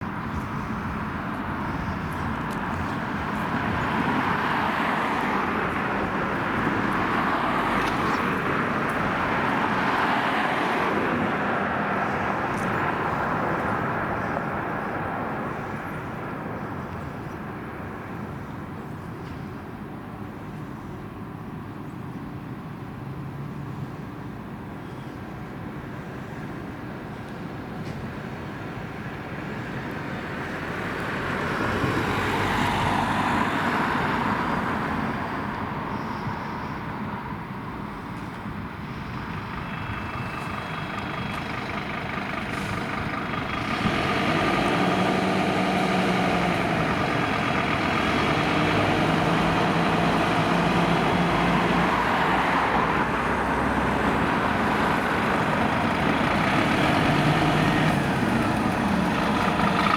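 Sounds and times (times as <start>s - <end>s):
road vehicles passing: 0.0s - 59.9s
diesel truck engine running: 38.5s - 59.9s.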